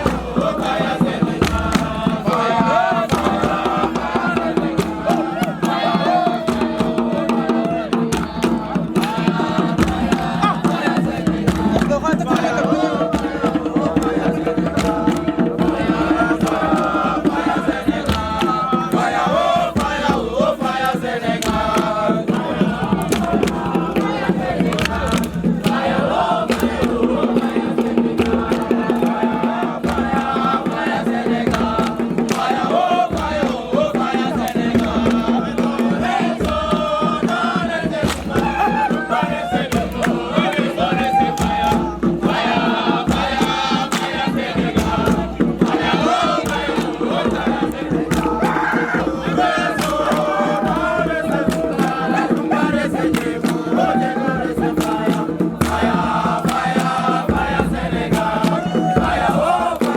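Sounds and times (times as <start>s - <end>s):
sharp claps: 0.0s - 7.0s, 8.0s - 48.6s, 49.3s - 59.9s
group singing and chanting: 0.0s - 59.9s.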